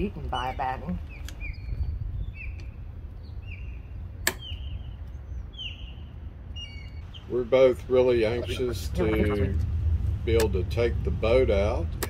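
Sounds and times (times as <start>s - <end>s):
low wind rumble: 0.0s - 12.0s
bird whistling calls: 1.1s - 7.3s
sharp click: 4.2s - 4.6s.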